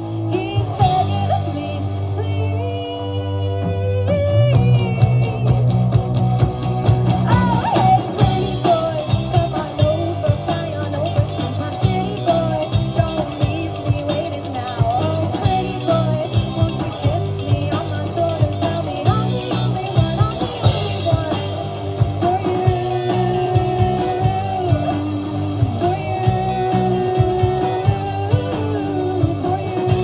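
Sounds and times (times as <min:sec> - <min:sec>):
rock band playing: 0:00.0 - 0:30.0
person singing: 0:07.2 - 0:30.0.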